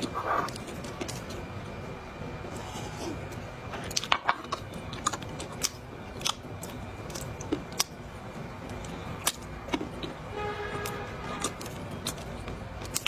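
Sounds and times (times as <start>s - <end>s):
dry clay crunching in mouth: 3.8s - 8.0s, 11.3s - 13.0s
horn toot: 10.3s - 11.3s.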